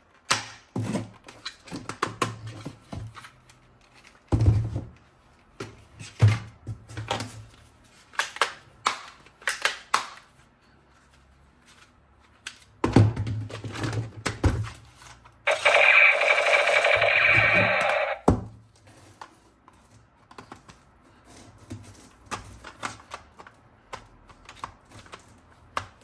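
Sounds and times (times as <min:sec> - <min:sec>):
toy guns clicking and knocking: 0:15.5 - 0:18.2.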